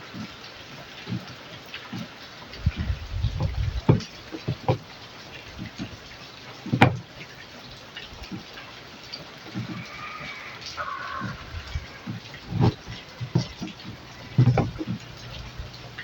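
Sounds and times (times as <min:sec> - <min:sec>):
heavy thumps: 0:02.6 - 0:04.9, 0:06.7 - 0:07.1, 0:11.2 - 0:16.0
tools knocking and clicking: 0:12.5 - 0:15.2.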